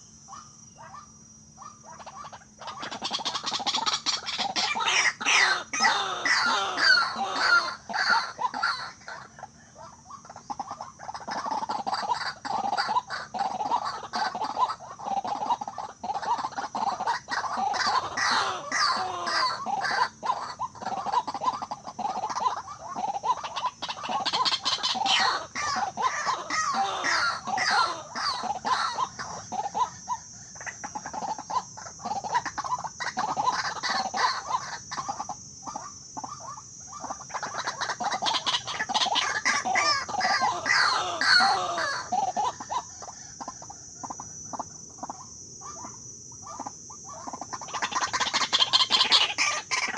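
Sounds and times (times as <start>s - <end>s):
waterhens croaking calls: 0.0s - 49.9s.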